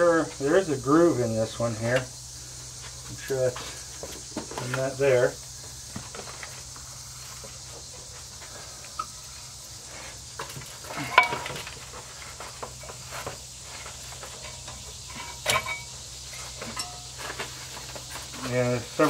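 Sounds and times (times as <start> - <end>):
ringing metal clinks: 14.4 - 17.2.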